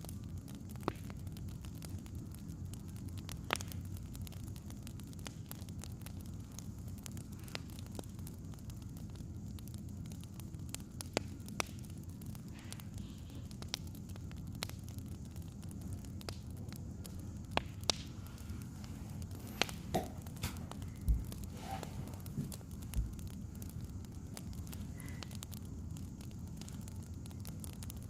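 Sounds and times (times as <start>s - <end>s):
wood fire crackling: 0.0s - 28.0s
dull thumps: 19.9s - 21.4s.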